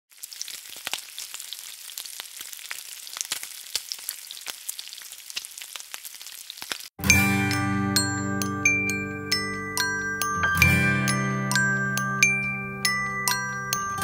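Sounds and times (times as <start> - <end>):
food frying in hot oil: 0.1 - 7.0.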